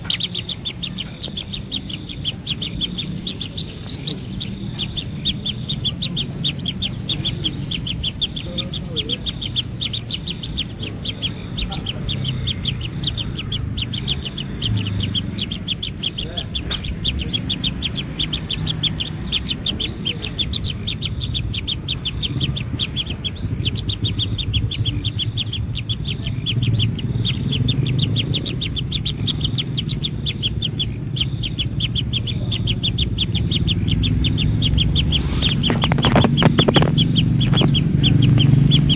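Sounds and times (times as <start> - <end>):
bird chirping rapidly: 0.0 - 38.9
high insect-like whine: 0.0 - 38.9.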